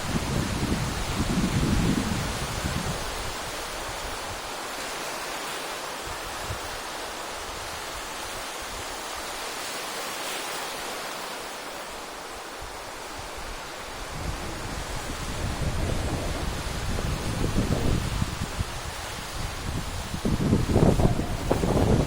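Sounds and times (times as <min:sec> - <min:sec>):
sea waves washing onto shore: 0:00.0 - 0:22.0.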